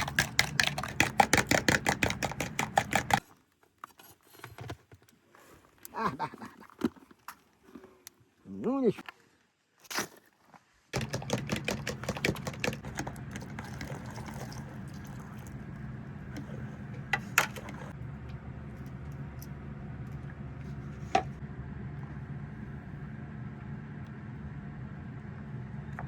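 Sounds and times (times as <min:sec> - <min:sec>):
rapid clicking and rattling: 0:00.0 - 0:03.2, 0:11.0 - 0:14.3.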